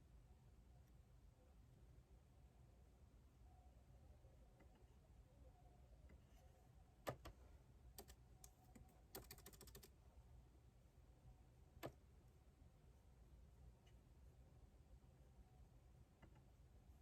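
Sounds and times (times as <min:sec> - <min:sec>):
computer keyboard typing: 0:08.0 - 0:09.9.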